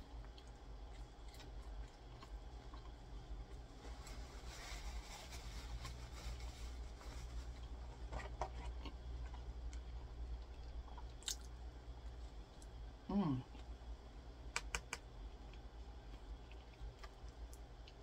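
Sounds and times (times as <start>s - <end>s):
steady low hum: 0.0s - 18.0s
chewing: 0.2s - 3.6s, 15.4s - 18.0s.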